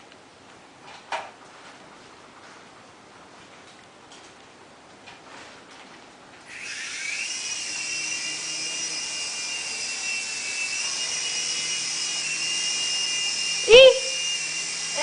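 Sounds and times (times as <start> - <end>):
remote-control helicopter whine: 6.5 - 15.0.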